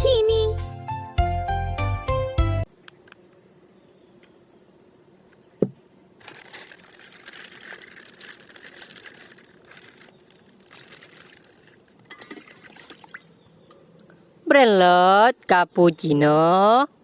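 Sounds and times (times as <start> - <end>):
plastic wrapping crinkling and tearing: 6.2 - 12.0.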